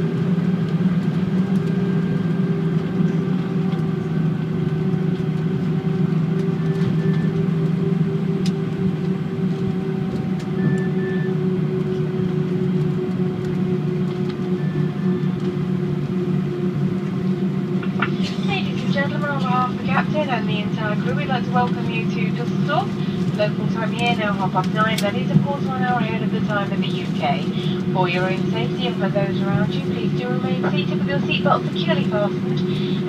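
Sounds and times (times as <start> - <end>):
aircraft cabin hum: 0.0 - 33.0
faint whine falling in pitch: 8.4 - 23.4.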